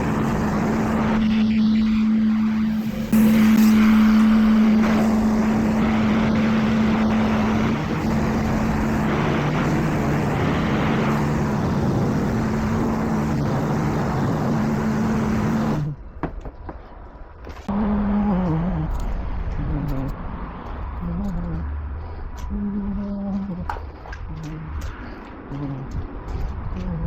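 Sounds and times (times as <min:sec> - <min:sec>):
car wash machinery droning hum: 0:00.0 - 0:16.0
rushing noise: 0:00.0 - 0:16.0
deeper machine hum: 0:00.0 - 0:16.1, 0:17.7 - 0:27.0.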